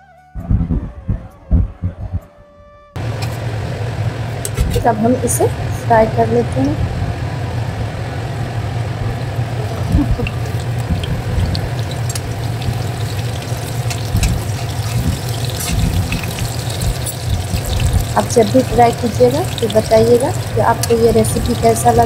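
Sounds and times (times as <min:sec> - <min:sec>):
low hum: 0:00.0 - 0:22.0
food sizzling in hot oil: 0:09.4 - 0:22.0.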